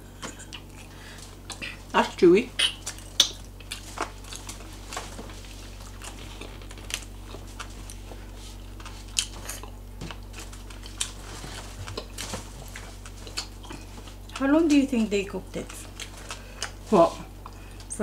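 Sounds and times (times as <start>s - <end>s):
steady low hum: 0.0s - 18.0s
chewing mouth smacks: 2.6s - 4.8s, 5.6s - 14.4s, 15.7s - 16.8s.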